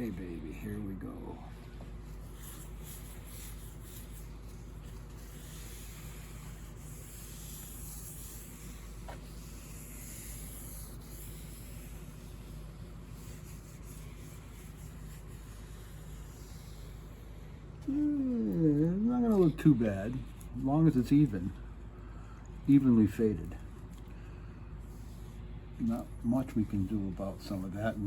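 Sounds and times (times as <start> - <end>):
cloth pad rubbing on wood: 2.0 - 17.2.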